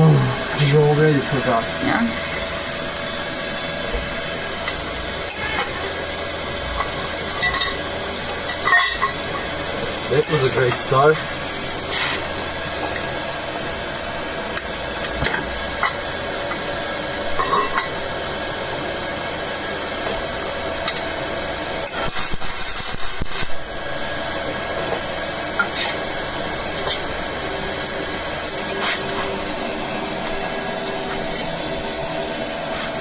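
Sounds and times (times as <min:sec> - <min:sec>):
welder humming: 0:00.0 - 0:33.0
welding crackles and clicks: 0:06.6 - 0:13.1, 0:20.0 - 0:31.5
hissing welding arc: 0:19.7 - 0:31.9.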